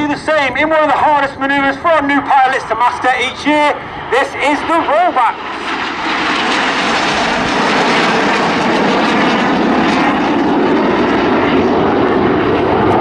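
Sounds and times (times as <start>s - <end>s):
jet aircraft roaring past: 0.0s - 13.0s.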